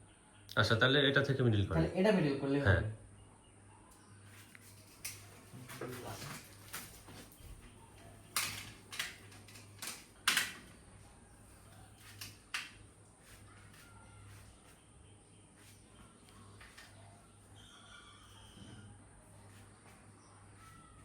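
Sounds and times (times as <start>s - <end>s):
faint low hum: 0.0s - 21.0s
tools clicking and knocking: 8.3s - 10.8s.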